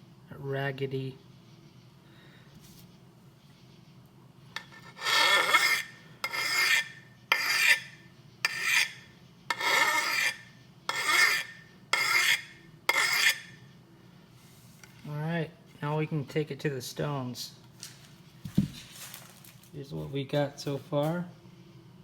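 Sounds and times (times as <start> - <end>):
file rasping on steel: 4.6 - 13.6.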